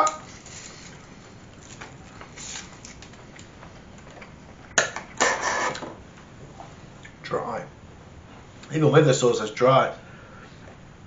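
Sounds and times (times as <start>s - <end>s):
person chewing: 0.2s - 4.4s.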